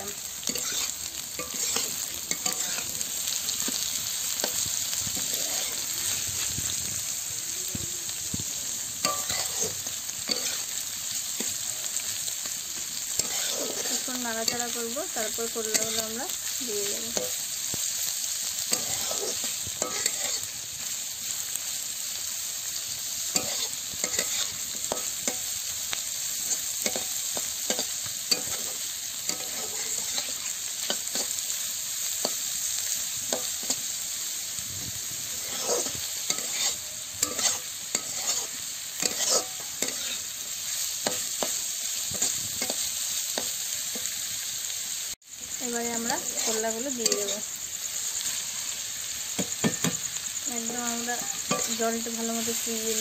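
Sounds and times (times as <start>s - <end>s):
onions sizzling in hot oil: 0.0s - 53.0s
spatula scraping and knocking pan: 0.5s - 2.9s, 18.7s - 20.4s, 35.4s - 40.2s.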